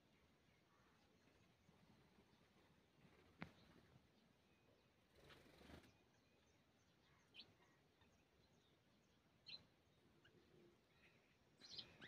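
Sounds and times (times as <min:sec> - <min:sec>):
small bird chirps: 0:09.4 - 0:12.0.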